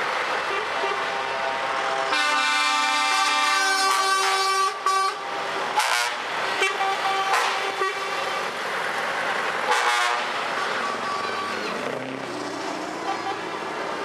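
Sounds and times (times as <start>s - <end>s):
truck air horns blowing: 2.1s - 8.5s, 9.7s - 11.6s, 13.0s - 13.6s.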